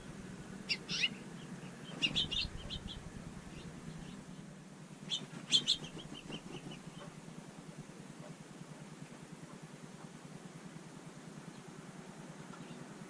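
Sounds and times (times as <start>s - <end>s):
finch chirping: 0.6s - 4.4s, 5.0s - 7.2s.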